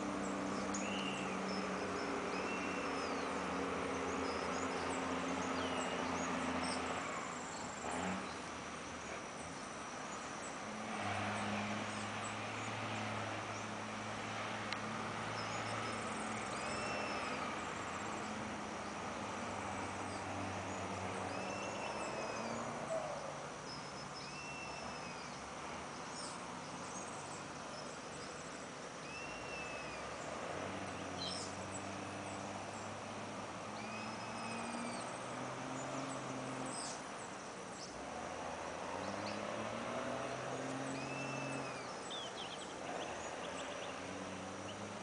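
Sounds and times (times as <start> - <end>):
steady outdoor hiss: 0.0 - 45.0
bird whistling: 0.7 - 1.4, 2.4 - 3.3, 16.6 - 17.5, 21.3 - 23.3, 24.2 - 25.2, 29.1 - 30.1, 41.0 - 42.6.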